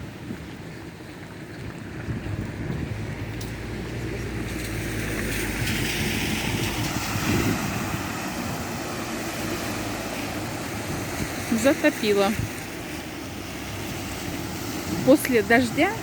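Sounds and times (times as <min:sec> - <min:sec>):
wind rumble on microphone: 0:00.0 - 0:16.0
tyres hissing through water: 0:03.4 - 0:16.0.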